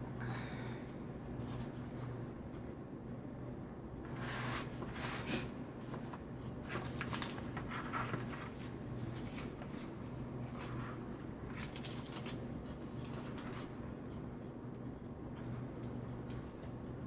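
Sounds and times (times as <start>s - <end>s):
steady low hum: 0.0s - 17.0s
paper and ribbon rustling: 6.0s - 13.7s.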